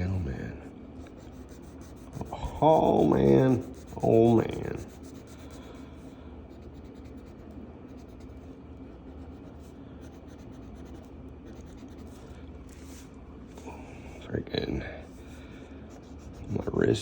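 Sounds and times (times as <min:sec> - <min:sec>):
marker scratching on paper: 0:01.0 - 0:05.8, 0:06.5 - 0:13.1, 0:15.9 - 0:17.0.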